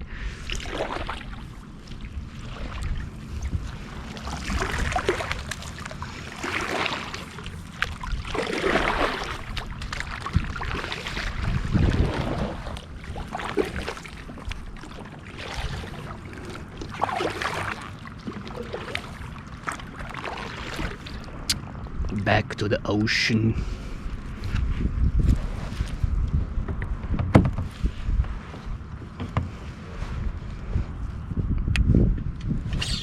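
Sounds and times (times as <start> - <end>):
wind rumbling on microphone: 0.0 - 33.0
water sloshing against kayak hull: 0.3 - 22.1, 23.6 - 31.3.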